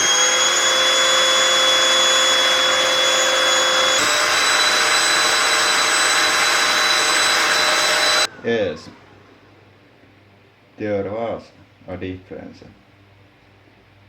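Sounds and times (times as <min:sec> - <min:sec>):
vacuum cleaner running: 0:00.0 - 0:10.1.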